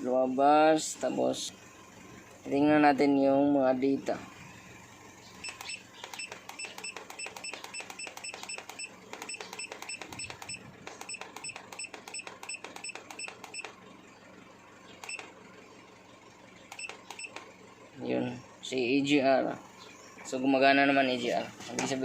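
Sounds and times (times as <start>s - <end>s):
keypad beeping: 5.4s - 13.8s, 15.0s - 15.3s, 16.7s - 17.5s.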